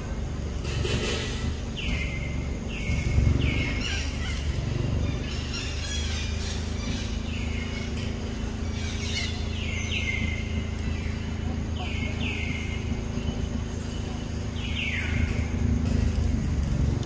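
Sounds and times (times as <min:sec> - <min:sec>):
bird calling: 0:00.0 - 0:17.0.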